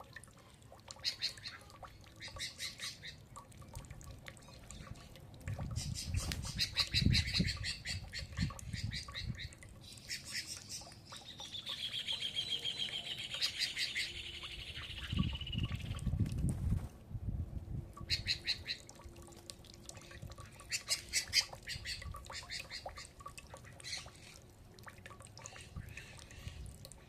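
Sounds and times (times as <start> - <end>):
birds chirping and trilling: 5.7 - 16.1, 18.0 - 18.9.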